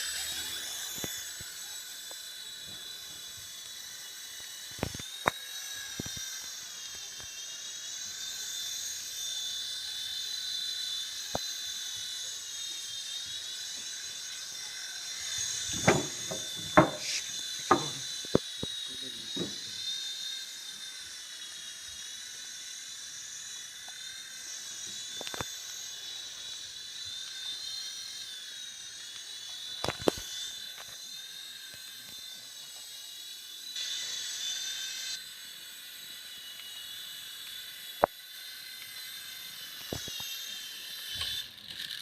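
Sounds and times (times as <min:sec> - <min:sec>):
toy helicopter motor whine: 0:00.0 - 0:42.0
sharp knocks: 0:15.8 - 0:18.0.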